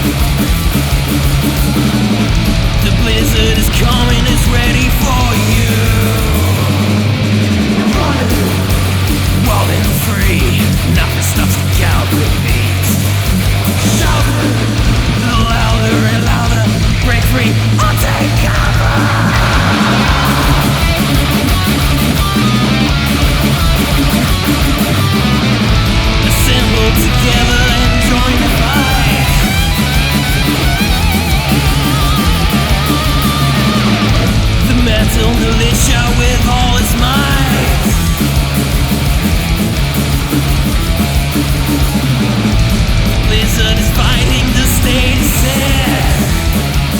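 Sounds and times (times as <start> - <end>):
bass and drums: 0.0 - 46.9
distorted electric guitars: 0.0 - 46.9
guitar line bending in pitch: 13.0 - 46.9.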